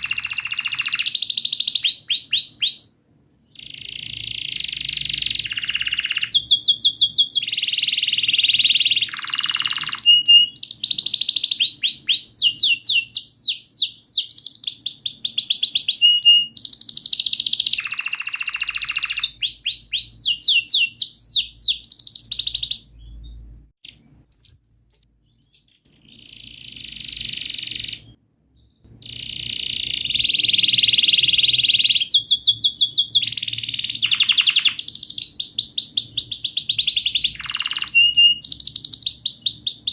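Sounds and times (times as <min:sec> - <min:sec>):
canary singing with trills: 0:00.0 - 0:39.9.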